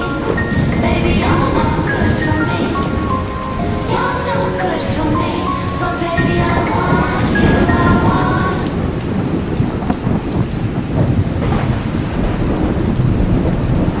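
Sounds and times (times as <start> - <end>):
heavy rain: 0.0 - 14.0
rumble of thunder: 6.2 - 14.0.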